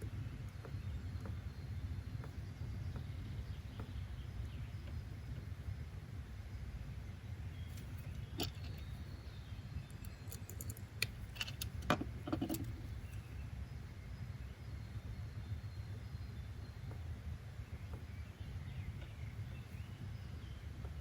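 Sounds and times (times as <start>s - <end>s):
low background rumble: 0.0s - 21.0s
light clicks and clinks: 7.7s - 9.0s, 9.8s - 13.2s.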